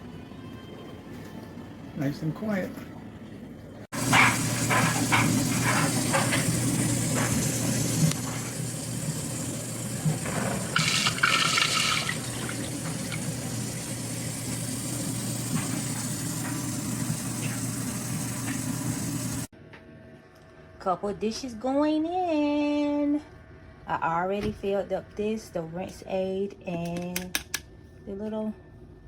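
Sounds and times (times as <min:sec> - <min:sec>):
dishwasher motor hum: 0:00.8 - 0:19.5
water spraying and sloshing: 0:04.0 - 0:19.5
water splash: 0:10.6 - 0:13.3.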